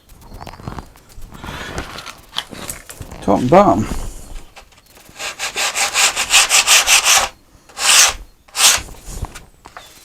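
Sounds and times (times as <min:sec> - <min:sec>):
hand sanding wood: 0:05.0 - 0:09.4.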